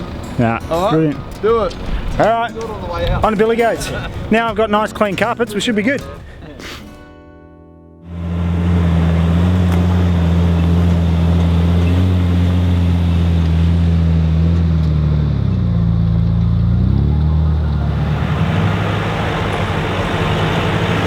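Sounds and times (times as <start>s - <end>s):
car engine under load: 1.2s - 4.3s, 8.1s - 21.0s.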